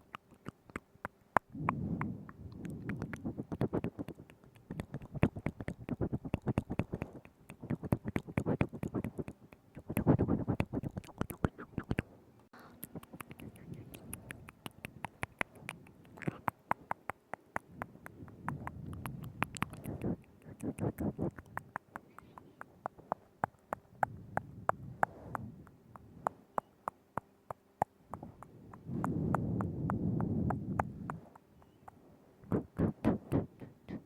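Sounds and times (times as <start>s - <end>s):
breathy wet mouth noise: 0.0s - 34.0s
wet tongue and lip clicks: 0.0s - 34.0s.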